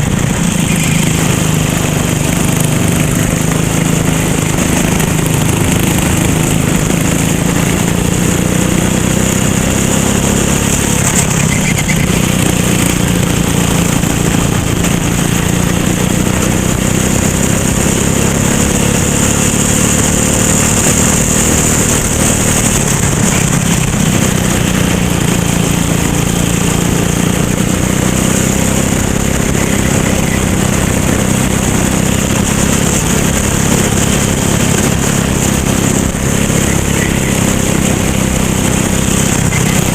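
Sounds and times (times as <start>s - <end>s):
kart engine running hard: 0.0s - 39.9s
wind and road noise: 0.0s - 39.9s.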